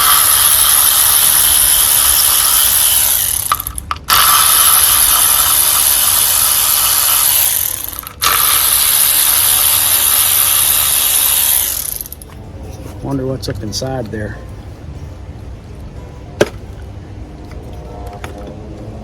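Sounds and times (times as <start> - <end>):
power ratchet whirring: 0.0 - 12.3.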